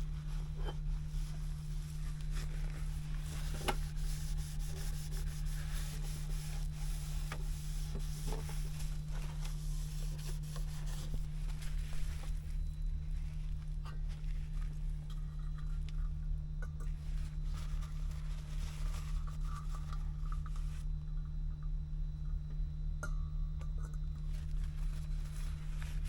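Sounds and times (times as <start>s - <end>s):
rubbing and scraping: 0.0s - 15.8s, 17.0s - 20.8s
steady low hum: 0.0s - 26.0s.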